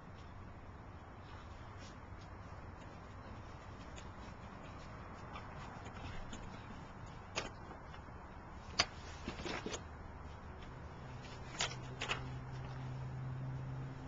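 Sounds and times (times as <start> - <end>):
low steady hum: 0.0 - 14.0
puppies scuffling: 1.2 - 8.0.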